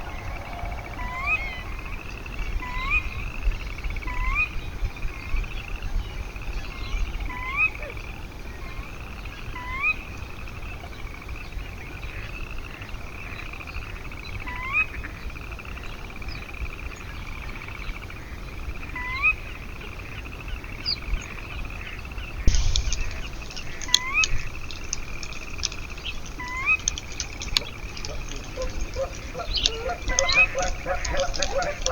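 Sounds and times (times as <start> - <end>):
frogs trilling: 0.0 - 4.6, 21.6 - 31.9
upward-slurred frog call: 22.5 - 31.9.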